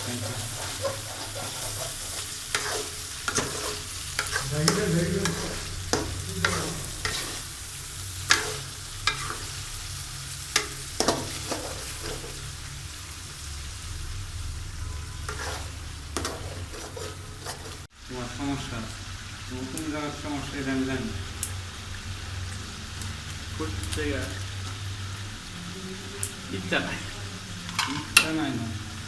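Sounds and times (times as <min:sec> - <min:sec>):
spatula scraping and knocking pan: 0:00.0 - 0:07.5, 0:08.3 - 0:09.6, 0:10.6 - 0:12.4, 0:15.2 - 0:17.9
curry sizzling in oil: 0:00.0 - 0:29.0.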